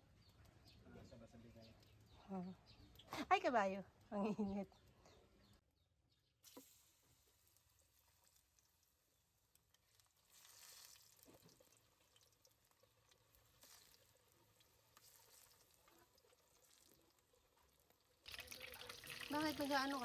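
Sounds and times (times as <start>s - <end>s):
soft crackles: 6.5s - 20.0s.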